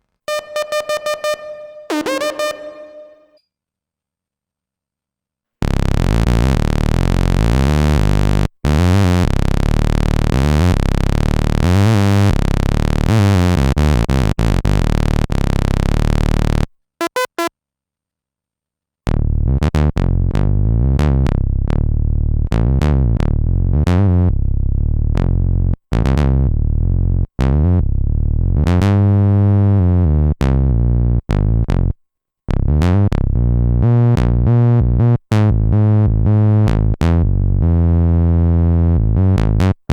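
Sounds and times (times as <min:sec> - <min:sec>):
synthesizer bass notes: 0:00.3 - 0:03.3
buzzy sweeping synthesizer tone: 0:00.3 - 0:03.4
synthesizer blips: 0:00.3 - 0:03.4.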